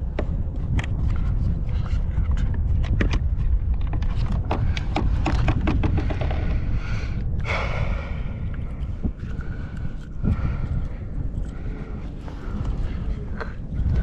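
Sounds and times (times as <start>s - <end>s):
wind rumbling on microphone: 0.0s - 14.0s
sharp clicks and knocks: 2.2s - 6.6s.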